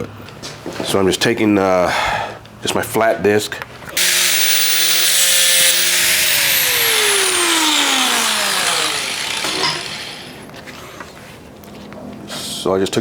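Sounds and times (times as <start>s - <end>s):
angle grinder grinding steel: 4.0s - 10.5s
grinder motor whine spinning down: 4.0s - 10.5s.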